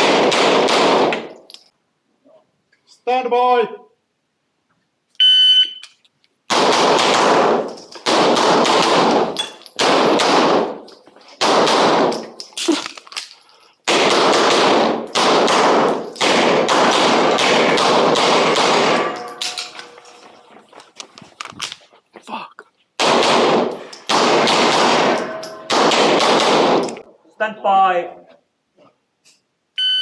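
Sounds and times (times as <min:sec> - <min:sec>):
pistol shots with echo: 0:00.0 - 0:01.3, 0:06.5 - 0:10.8, 0:11.4 - 0:12.3, 0:13.9 - 0:20.0, 0:23.0 - 0:27.0
shot timer beep: 0:05.2 - 0:05.8, 0:29.8 - 0:30.0.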